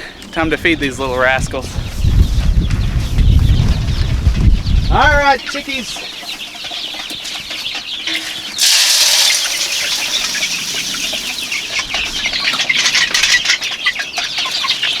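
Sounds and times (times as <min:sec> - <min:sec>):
hens clucking: 0:05.4 - 0:15.0
grain poured rattling: 0:08.6 - 0:11.8
grain pattering: 0:08.6 - 0:12.0.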